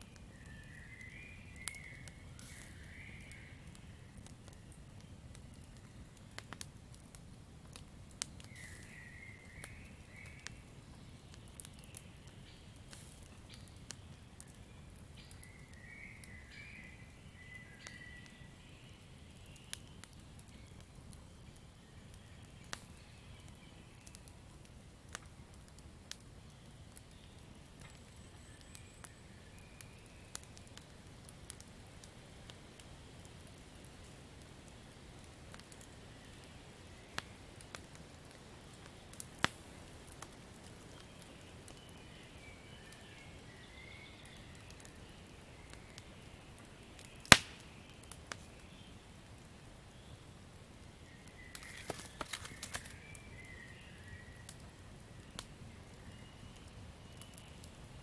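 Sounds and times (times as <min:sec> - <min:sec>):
campfire crackling: 0:00.0 - 0:58.0
low rumble of burning wood: 0:00.0 - 0:58.0
fire pops and snaps: 0:00.1 - 0:16.4, 0:19.4 - 0:28.8, 0:37.1 - 0:42.1, 0:46.6 - 0:49.5, 0:50.8 - 0:53.9.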